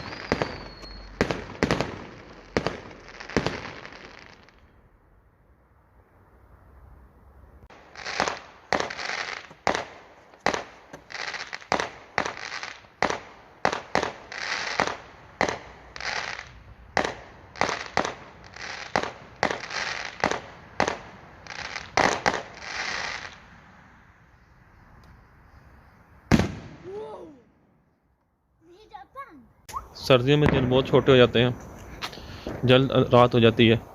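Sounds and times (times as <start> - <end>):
fireworks banging: 0.0 - 4.7, 7.7 - 23.5, 26.3 - 27.6, 29.8 - 33.9
crackling hiss: 0.0 - 4.9, 7.6 - 26.8, 29.6 - 33.9.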